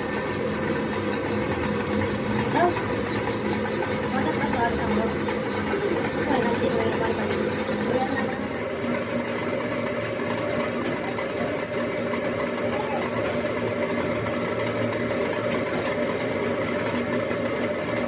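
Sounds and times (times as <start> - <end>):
machine motor humming: 0.0 - 18.0.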